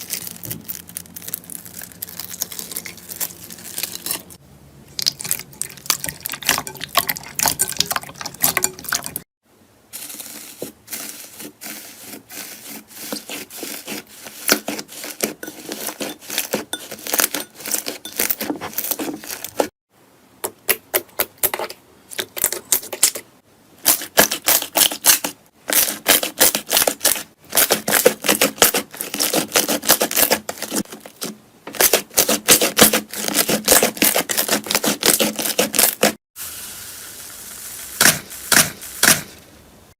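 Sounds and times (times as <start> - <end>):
slime crackling and popping: 0.0 - 4.2.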